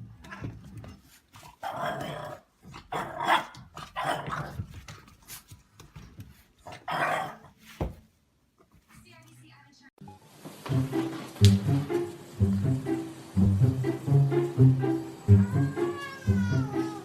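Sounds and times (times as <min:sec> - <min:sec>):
dog growling: 0:01.6 - 0:04.6.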